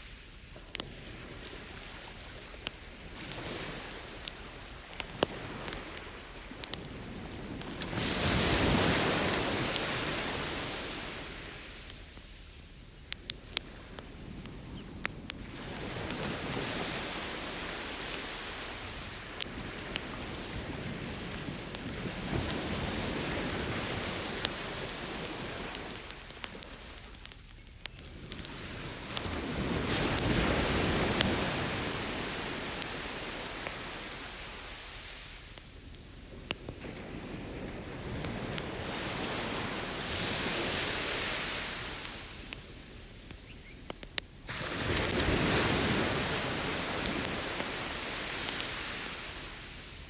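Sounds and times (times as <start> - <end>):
ocean surf washing: 0.0 - 12.4, 13.1 - 27.4, 28.0 - 35.6, 36.2 - 50.0
campfire pops and crackles: 0.0 - 50.0.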